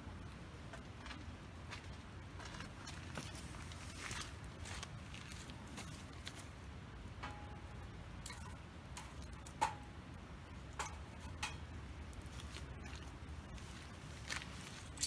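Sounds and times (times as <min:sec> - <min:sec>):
campfire crackling: 0:00.0 - 0:15.0
low steady rumble: 0:00.0 - 0:15.0.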